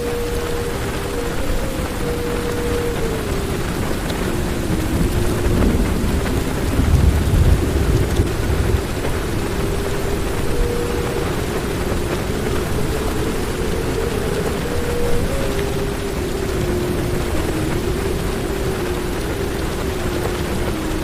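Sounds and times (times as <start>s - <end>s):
heavy rain on car roof: 0.0s - 21.0s
thunder rolling: 2.5s - 15.3s.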